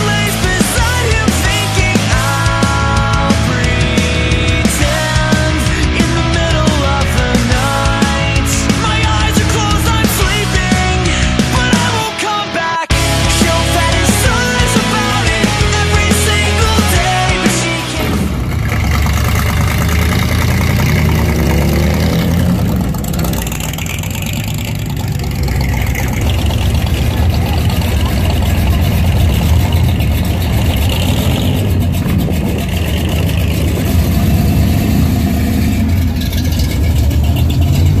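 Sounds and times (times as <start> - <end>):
choppy loping engine rumble: 0.0 - 38.0
hot rod engines rumbling: 0.0 - 38.0.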